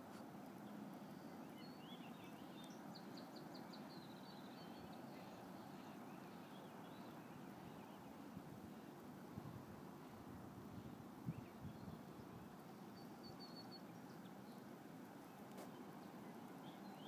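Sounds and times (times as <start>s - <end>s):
faint bird chirps: 0.6s - 8.2s, 12.8s - 17.0s.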